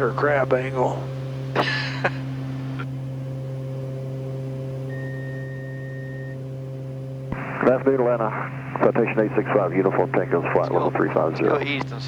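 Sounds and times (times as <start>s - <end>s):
turboprop cabin drone: 0.0s - 12.0s
faint thin high tone: 4.8s - 6.4s.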